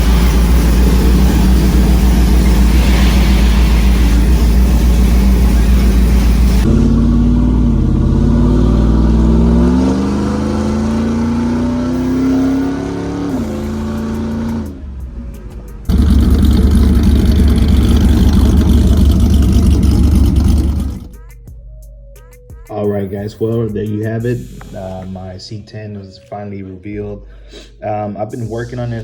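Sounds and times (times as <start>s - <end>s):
car engine accelerating: 0.0s - 21.2s
engine and road rumble: 0.0s - 21.2s.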